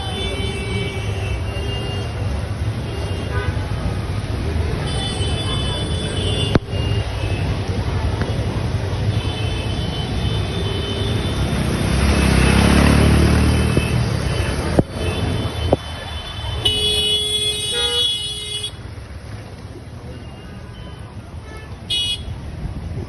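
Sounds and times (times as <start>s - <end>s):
heavy rain: 0.0s - 17.5s
road noise: 0.0s - 23.0s
vehicle passing: 11.2s - 15.6s
vehicle horn honking: 13.8s - 18.8s, 21.5s - 22.3s.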